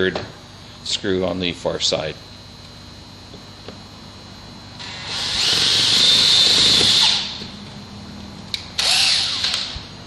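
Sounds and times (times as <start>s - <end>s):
cordless drill driving screw into steel: 4.9s - 7.3s, 8.8s - 9.7s.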